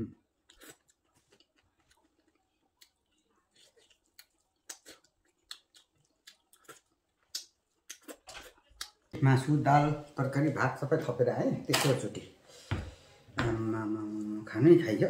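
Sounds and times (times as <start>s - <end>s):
person chewing: 0.3s - 9.1s
soft mouth clicks: 7.3s - 8.1s.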